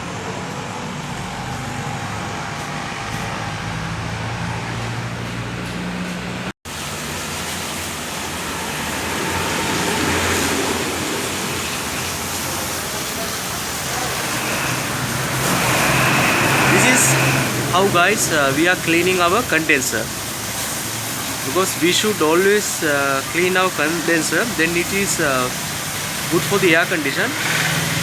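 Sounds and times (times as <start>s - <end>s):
water spray hissing: 6.7s - 28.0s.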